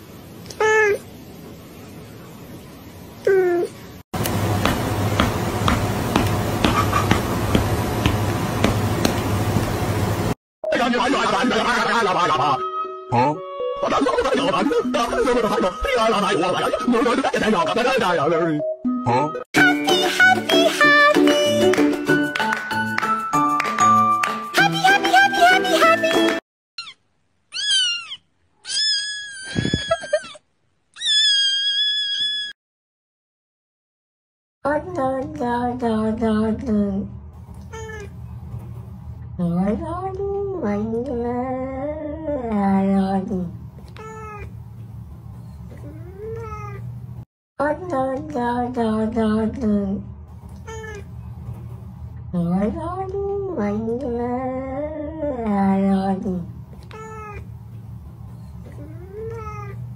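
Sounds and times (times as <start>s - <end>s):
noisy backing: 4.2s - 10.4s
music: 12.2s - 16.8s, 18.6s - 26.4s
kitten meowing and crying: 26.8s - 30.4s, 31.0s - 32.5s.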